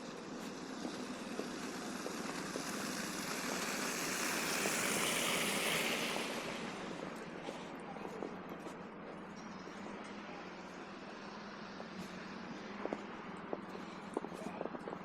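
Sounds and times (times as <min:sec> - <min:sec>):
car tyres hissing on snow: 0:00.0 - 0:07.8.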